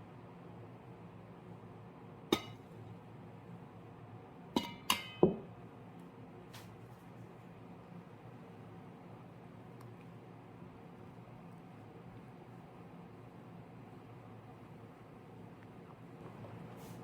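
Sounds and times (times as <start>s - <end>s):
dishes clinking: 2.3s - 2.6s, 4.6s - 5.4s.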